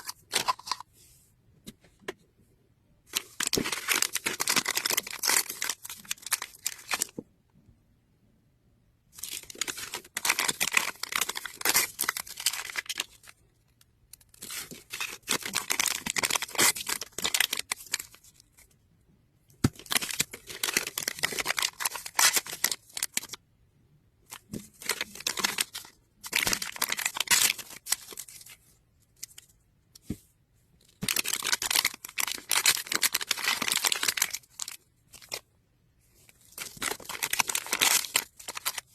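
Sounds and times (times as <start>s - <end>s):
plastic wrapping crinkling and tearing: 3.1s - 7.1s, 9.2s - 13.3s, 14.3s - 18.4s, 19.7s - 23.4s, 24.3s - 28.6s, 31.0s - 35.4s, 36.4s - 38.9s.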